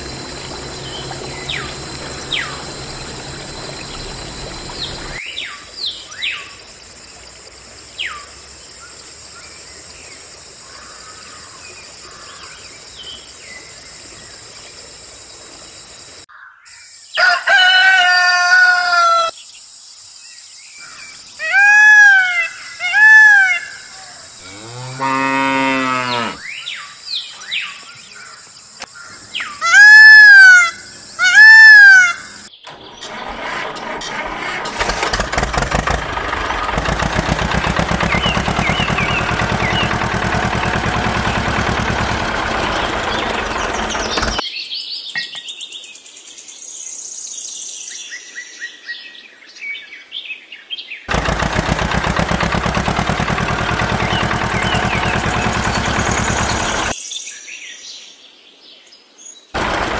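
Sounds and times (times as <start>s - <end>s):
rise-and-fall animal calls: 21.4s - 26.4s, 29.4s - 32.5s
cow mooing: 24.4s - 26.5s.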